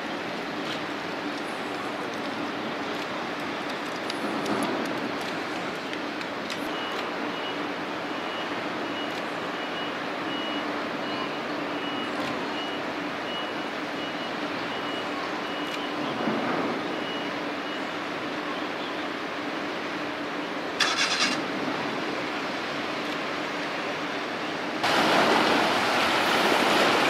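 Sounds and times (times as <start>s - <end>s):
engine noise: 20.1s - 27.0s.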